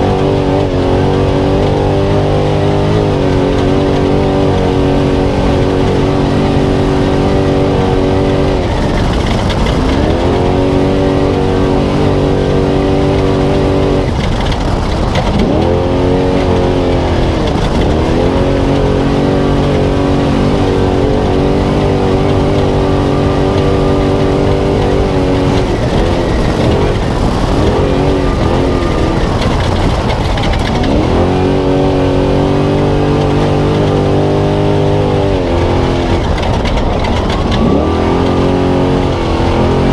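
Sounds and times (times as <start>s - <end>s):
road and wind noise: 0.0s - 39.9s
truck engine at high revs: 0.0s - 39.9s.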